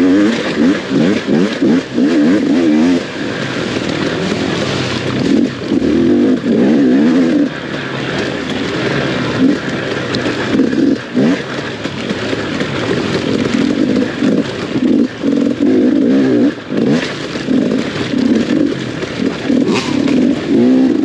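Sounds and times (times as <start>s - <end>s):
dirt bike engine revving: 0.0s - 21.0s.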